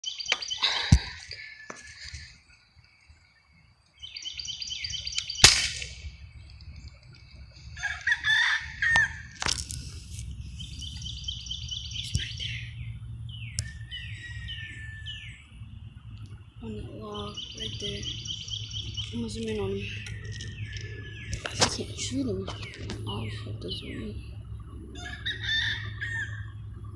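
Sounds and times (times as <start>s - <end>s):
birds trilling and singing: 0.0s - 26.9s
low rumble: 8.7s - 26.9s.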